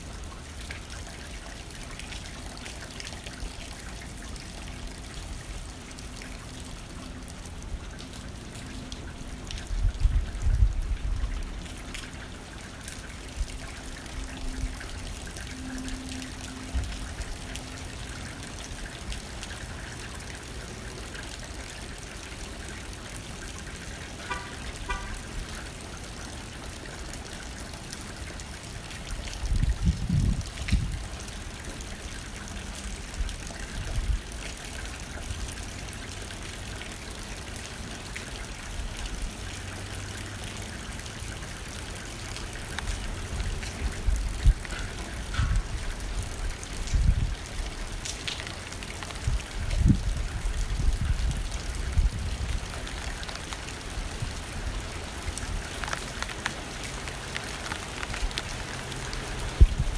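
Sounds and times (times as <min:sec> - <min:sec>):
wind gusts: 0:09.4 - 0:11.6, 0:29.4 - 0:31.2, 0:42.7 - 0:48.3, 0:49.1 - 0:55.9, 0:57.8 - 0:59.9
rain hitting a window pane: 0:23.7 - 0:28.1, 0:41.6 - 0:59.9.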